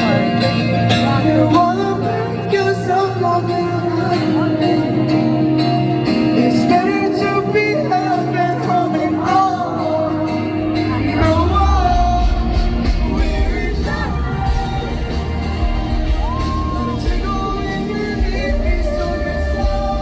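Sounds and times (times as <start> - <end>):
live band playing pop-rock: 0.0 - 20.0
man singing: 0.0 - 20.0
heavy low bass: 10.6 - 20.0.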